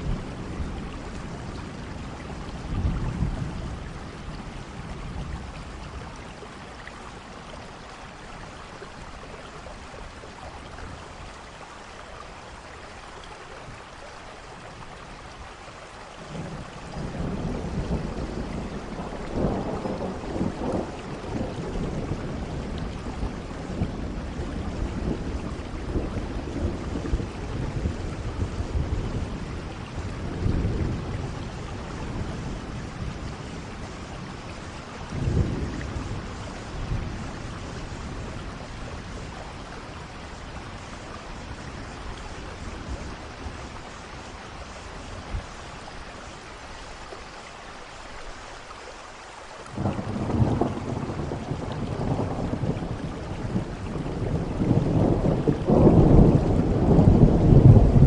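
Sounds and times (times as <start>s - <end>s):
heavy rain: 0.0s - 58.0s
rolling thunder: 16.3s - 45.6s, 49.7s - 58.0s
sharp thunder crack: 54.3s - 58.0s.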